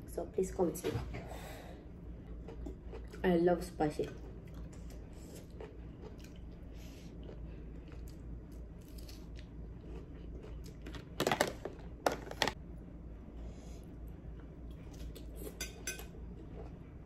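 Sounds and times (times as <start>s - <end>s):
person chewing: 2.2s - 3.2s, 4.1s - 11.1s.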